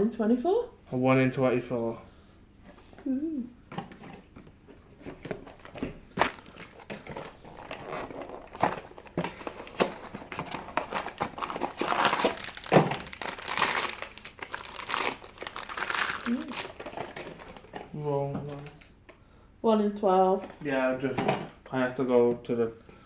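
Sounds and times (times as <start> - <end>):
foil packaging crinkling: 5.6 - 17.7.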